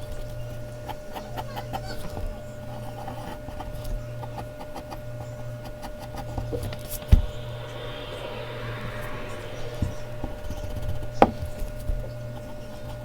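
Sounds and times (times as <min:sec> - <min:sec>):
steady low hum: 0:06.0 - 0:11.2.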